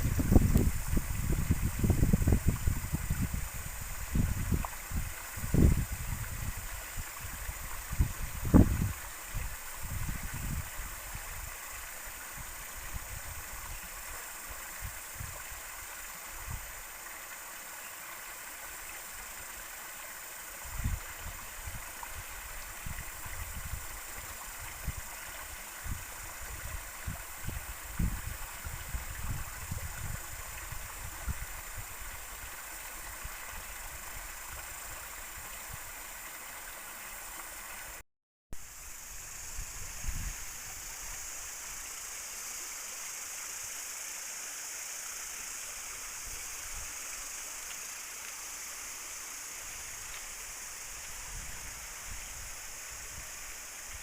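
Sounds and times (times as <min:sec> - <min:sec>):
river rushing: 0:38.6 - 0:54.0.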